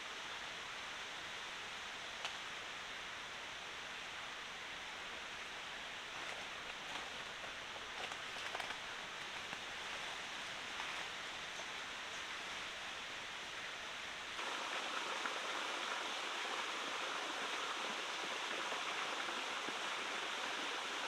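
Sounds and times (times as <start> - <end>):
water noise: 4.4 - 21.0.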